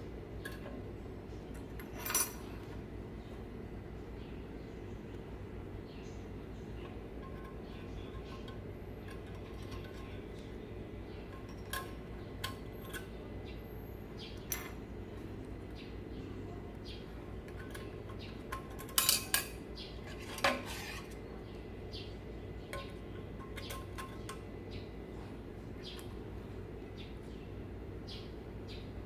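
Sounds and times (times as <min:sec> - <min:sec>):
low background noise: 0:00.0 - 0:29.0
small utensils clinking on cookware: 0:01.6 - 0:02.6, 0:06.8 - 0:10.6, 0:11.2 - 0:13.2, 0:17.3 - 0:21.2, 0:22.6 - 0:24.5.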